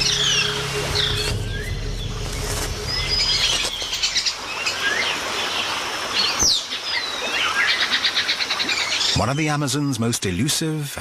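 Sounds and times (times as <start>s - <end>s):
bird trill: 0.0s - 5.2s
birds chirping and whistling: 0.0s - 9.2s.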